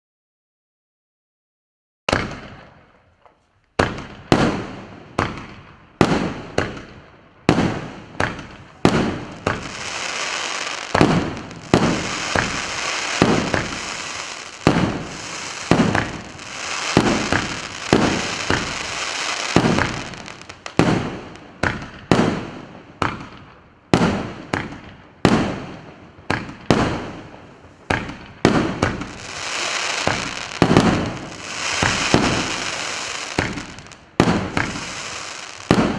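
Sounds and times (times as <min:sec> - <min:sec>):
firework bangs: 0:03.8 - 0:25.7, 0:26.3 - 0:35.9
firework hiss: 0:08.8 - 0:21.4, 0:28.8 - 0:35.9.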